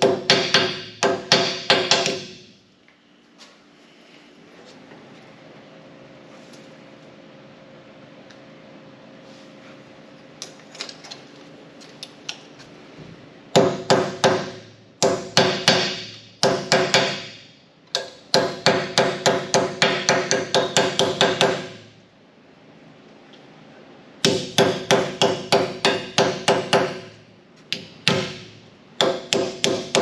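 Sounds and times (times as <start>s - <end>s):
hammer striking sheet metal: 0.0s - 2.5s.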